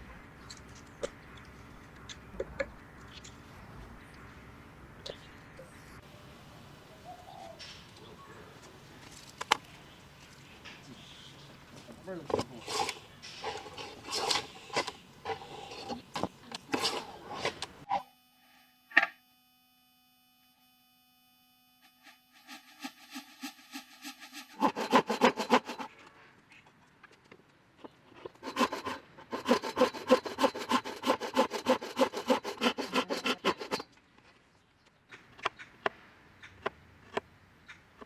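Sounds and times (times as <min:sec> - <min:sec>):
hand tool rasping wood: 0:12.3 - 0:17.9, 0:22.8 - 0:26.0, 0:28.2 - 0:33.9.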